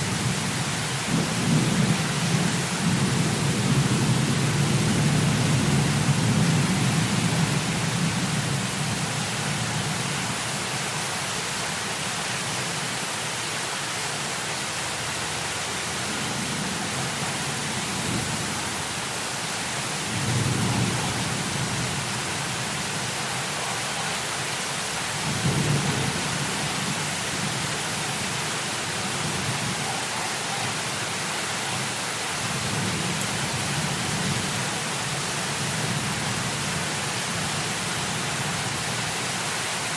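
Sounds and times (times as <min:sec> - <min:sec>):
heavy rain: 0:00.0 - 0:39.9
low rolling thunder: 0:01.1 - 0:09.0, 0:20.0 - 0:23.7, 0:25.1 - 0:30.0.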